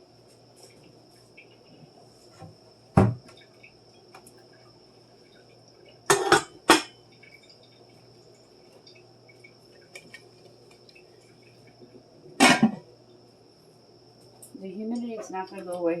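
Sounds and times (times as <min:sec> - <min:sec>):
faint steady hum: 0:00.0 - 0:16.0
dishes clinking: 0:06.1 - 0:07.0, 0:12.4 - 0:12.8.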